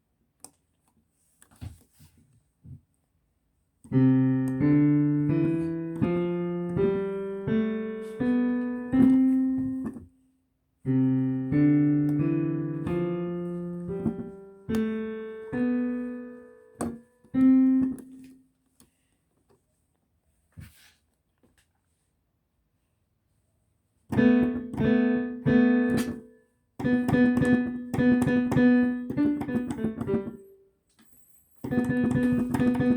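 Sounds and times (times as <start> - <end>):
piano notes: 3.9 - 10.1, 10.8 - 18.4, 24.1 - 30.6, 31.6 - 32.9.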